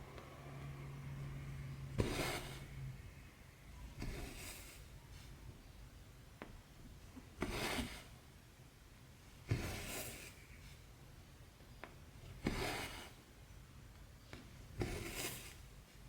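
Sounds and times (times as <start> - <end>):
thread rasping through fabric: 1.6 - 3.0, 3.9 - 5.1, 7.4 - 8.2, 9.4 - 10.4, 14.8 - 15.7.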